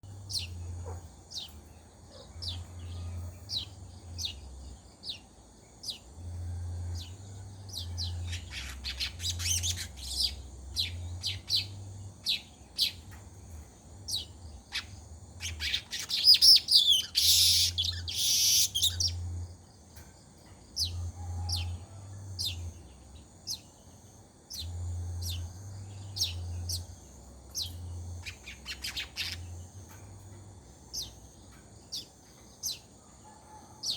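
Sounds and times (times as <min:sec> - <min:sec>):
low hum: 0:00.0 - 0:15.5, 0:18.7 - 0:32.4
birds chirping: 0:00.0 - 0:33.9
birds chattering: 0:06.9 - 0:20.0, 0:20.6 - 0:33.9.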